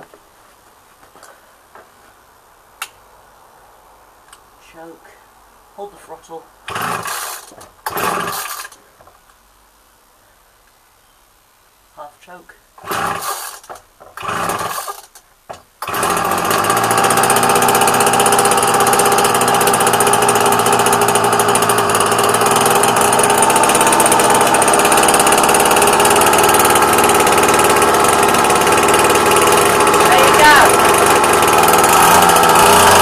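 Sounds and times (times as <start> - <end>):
starter cord pulls: 6.7 - 8.8, 12.9 - 33.0
string trimmer engine running: 6.7 - 8.8, 12.8 - 15.2, 15.8 - 33.0.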